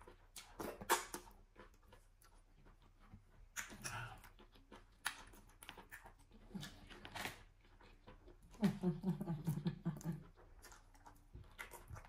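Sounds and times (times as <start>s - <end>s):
wet mouth noise: 0.0s - 1.4s
soft chewing: 0.0s - 12.0s.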